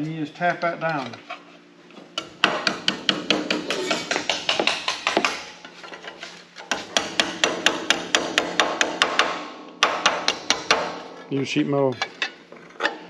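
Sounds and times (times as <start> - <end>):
hammer tapping sheet metal: 2.2 - 5.6, 6.7 - 11.0.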